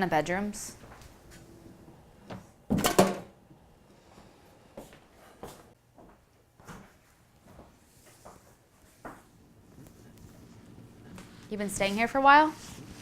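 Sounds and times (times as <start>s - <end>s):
loud clunk: 2.7s - 3.3s.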